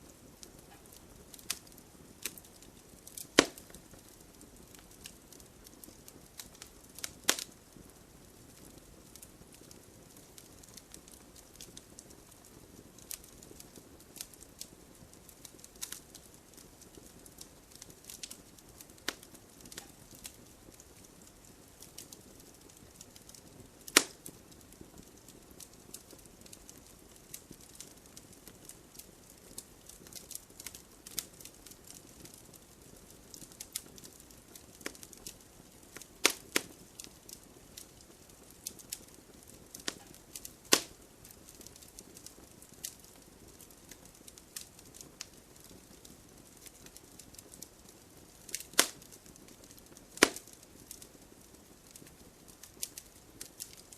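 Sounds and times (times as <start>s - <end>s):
fire popping loudly: 0.0s - 53.9s
wood fire crackling: 0.0s - 53.9s.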